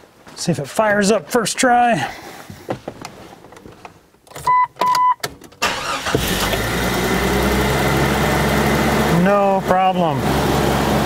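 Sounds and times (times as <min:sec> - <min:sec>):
short beeps: 0:04.5 - 0:05.2
starter cranking: 0:05.6 - 0:06.7
car engine idling: 0:05.6 - 0:11.0.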